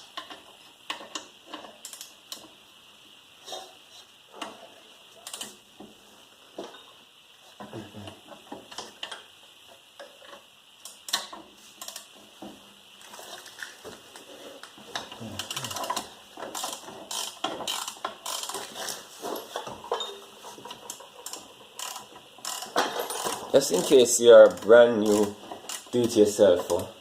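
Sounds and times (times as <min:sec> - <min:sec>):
ratchet wrench clicking: 0:00.2 - 0:02.5, 0:05.2 - 0:05.6, 0:10.8 - 0:12.1, 0:15.4 - 0:18.7, 0:20.9 - 0:26.9.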